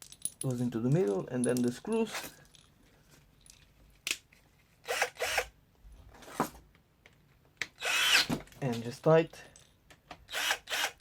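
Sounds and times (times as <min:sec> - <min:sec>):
power tool bursts: 0:04.9 - 0:05.5, 0:07.8 - 0:08.3, 0:10.3 - 0:11.0.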